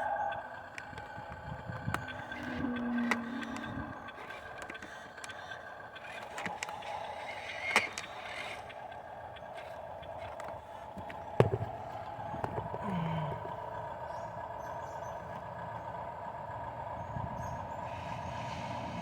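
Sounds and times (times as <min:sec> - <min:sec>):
toy truck motor whining: 0:00.0 - 0:13.9.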